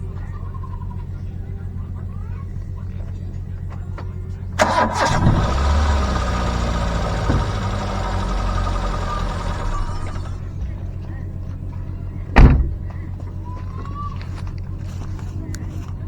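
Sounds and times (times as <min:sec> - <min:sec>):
car starter cranking: 0:04.6 - 0:10.8
car engine running: 0:04.6 - 0:11.6.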